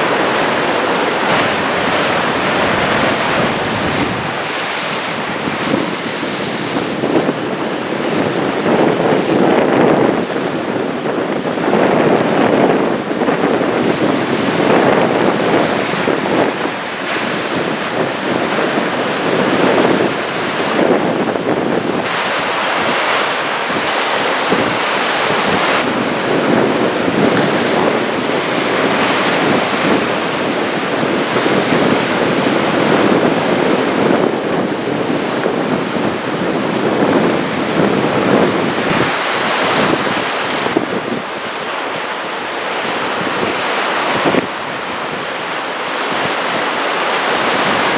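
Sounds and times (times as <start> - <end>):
ocean surf rushing: 0.0 - 47.9
wind gusting on microphone: 0.0 - 47.9.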